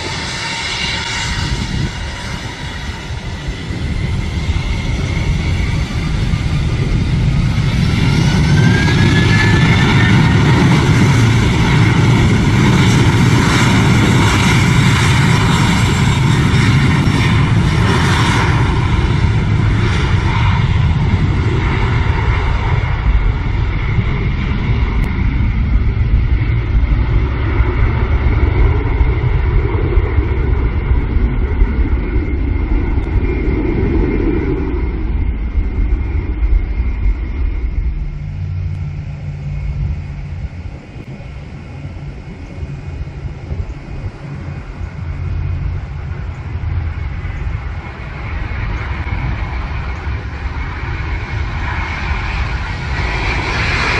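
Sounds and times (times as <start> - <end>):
jet engines rumbling and whining: 0.0 - 53.9.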